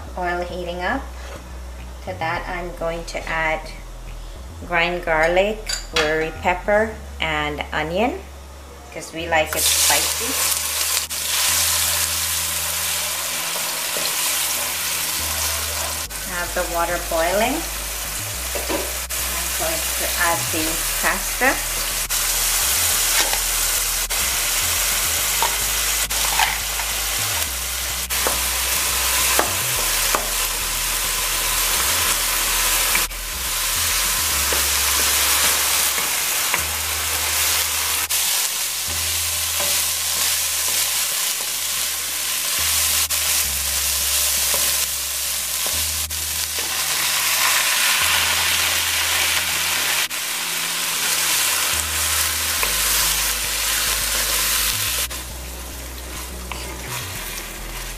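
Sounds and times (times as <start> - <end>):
meat sizzling in a frying pan: 9.5 - 57.9
wooden spatula scraping a pan: 55.9 - 57.9.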